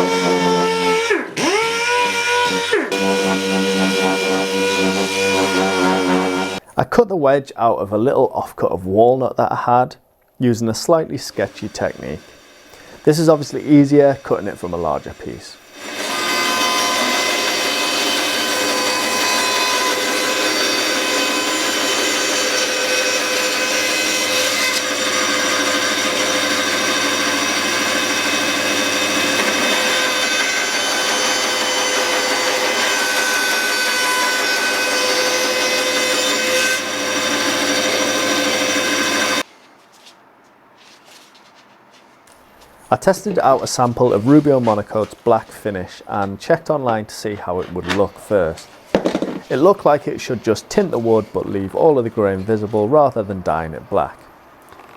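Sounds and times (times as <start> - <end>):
power saw cutting wood: 0.0 - 6.6, 10.9 - 39.5, 43.3 - 45.4.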